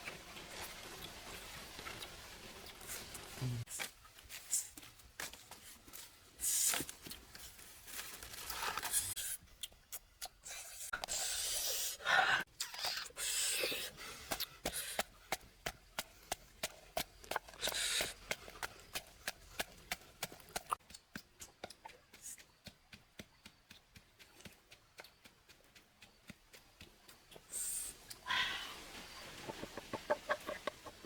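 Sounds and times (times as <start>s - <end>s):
food scraping and tearing: 8.0s - 9.4s.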